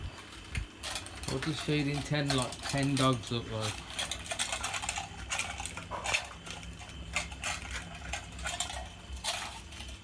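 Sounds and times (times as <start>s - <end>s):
dogs crunching and chewing: 0.1s - 10.0s
bowls clattering: 0.8s - 10.0s.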